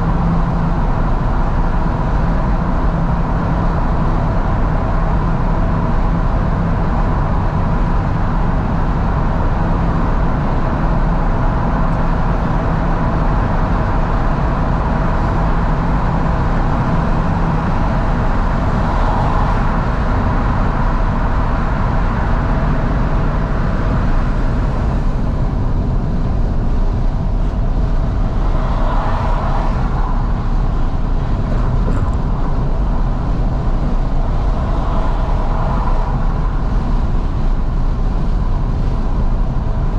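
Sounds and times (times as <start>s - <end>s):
car engine running: 0.0s - 39.9s
wind and road noise: 0.0s - 39.9s.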